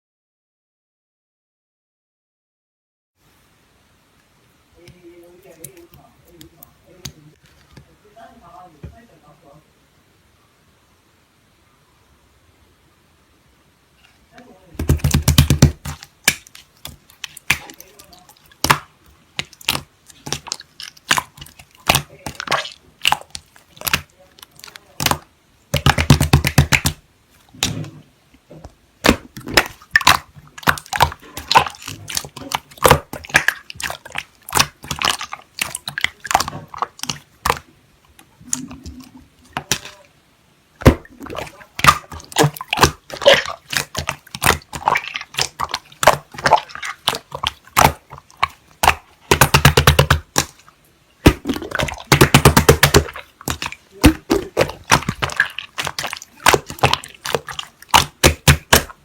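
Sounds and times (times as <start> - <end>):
slime squeezed by hand: 14.8 - 28.0, 29.0 - 40.0, 40.8 - 59.0.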